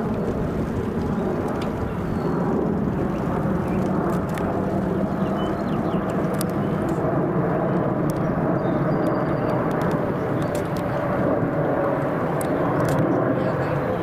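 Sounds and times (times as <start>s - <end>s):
aircraft engine rumble: 0.0s - 14.0s.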